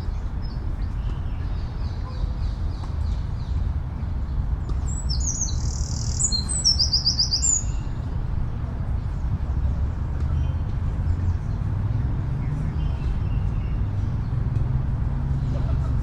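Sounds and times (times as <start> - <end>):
songbird singing: 0.0 - 8.2, 9.0 - 14.8
distant city traffic rumble: 0.0 - 16.0.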